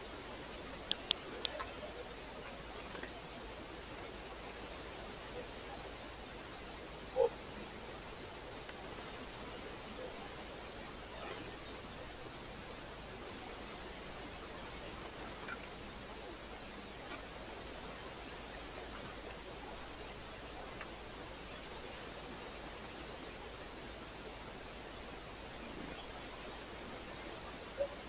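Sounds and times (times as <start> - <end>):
microphone hiss: 0.0 - 28.0
faint ticks: 0.7 - 3.3, 4.0 - 5.2, 7.1 - 8.0, 8.6 - 10.2, 11.0 - 11.9, 16.9 - 19.8, 20.5 - 22.0.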